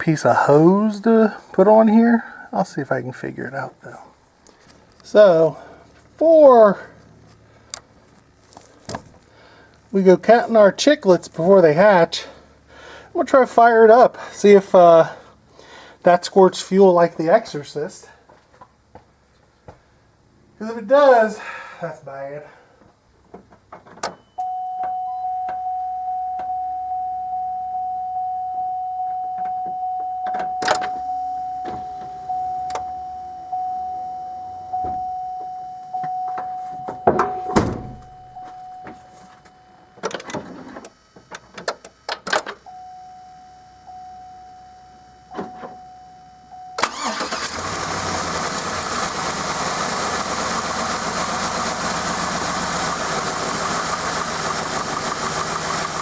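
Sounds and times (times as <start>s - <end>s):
vehicle warning chime dinging: 24.0s - 40.2s, 42.6s - 48.2s
car engine starting and running: 24.1s - 56.0s.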